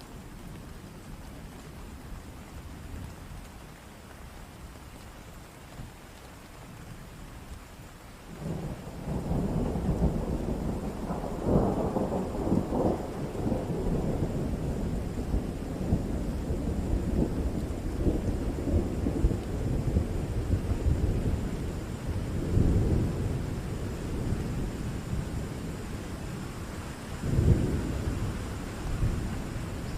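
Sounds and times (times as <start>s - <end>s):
rain falling: 0.0s - 29.9s
thunder rumbling: 8.3s - 29.9s.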